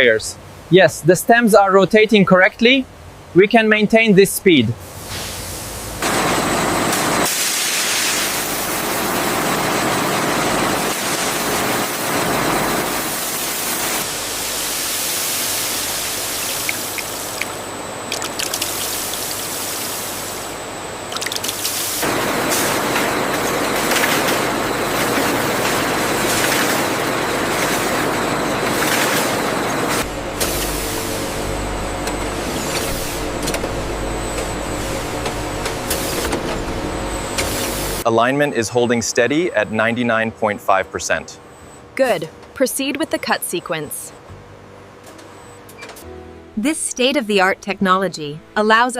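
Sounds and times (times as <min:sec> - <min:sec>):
machine noise: 0:05.4 - 0:47.6
water sprayers hissing: 0:12.9 - 0:20.5.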